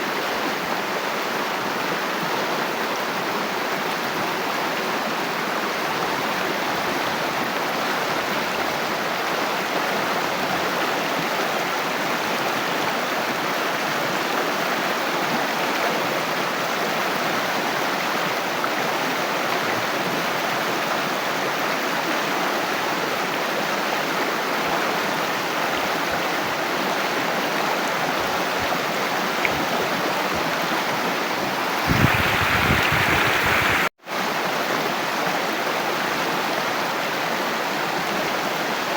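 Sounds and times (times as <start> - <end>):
water flowing: 24.8 - 33.9.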